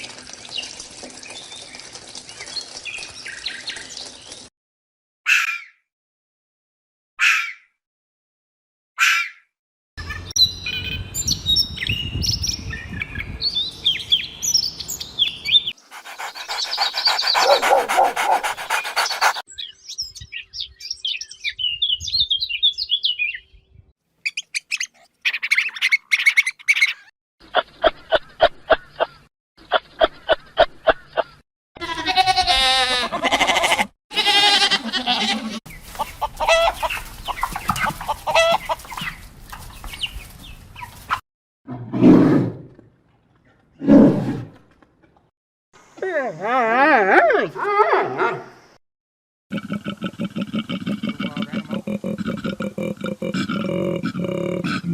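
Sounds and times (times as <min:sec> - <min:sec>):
birds chirping and calling: 0:10.0 - 0:23.6, 0:24.2 - 0:31.4, 0:34.5 - 0:41.2
pulsed animal calls: 0:15.8 - 0:19.4.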